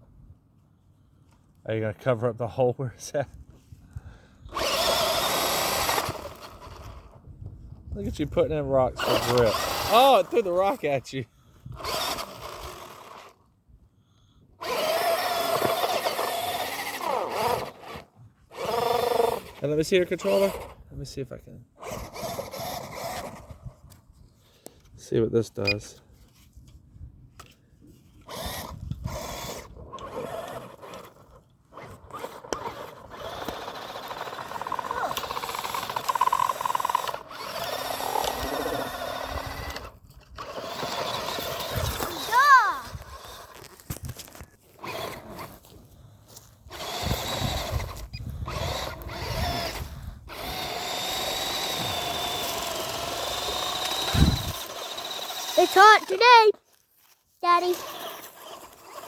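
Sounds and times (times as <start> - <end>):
wheels spinning in loose dirt: 4.5 - 7.2, 8.0 - 11.0, 11.7 - 13.4, 14.6 - 20.8, 21.8 - 23.9, 28.2 - 59.0
rc truck motor whining: 4.5 - 7.3, 8.9 - 11.0, 11.6 - 13.5, 14.6 - 20.8, 21.8 - 23.8, 27.4 - 56.6, 57.4 - 59.0.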